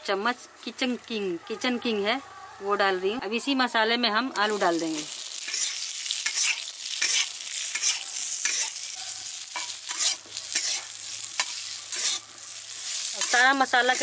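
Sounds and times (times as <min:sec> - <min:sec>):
potatoes sizzling in oil: 0:00.0 - 0:14.0
metal spatula scraping pan: 0:09.6 - 0:14.0.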